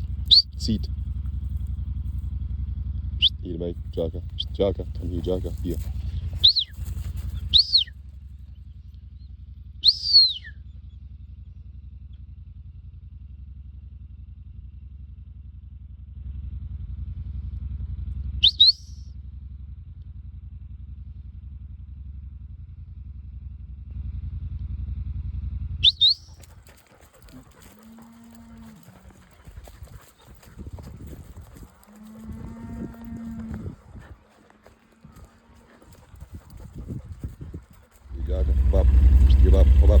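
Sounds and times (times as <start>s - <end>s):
low engine-like rumble: 0.0s - 40.0s
short sharp whistles: 0.3s - 0.7s, 6.4s - 7.9s, 9.8s - 10.6s, 18.4s - 19.0s, 25.8s - 26.4s.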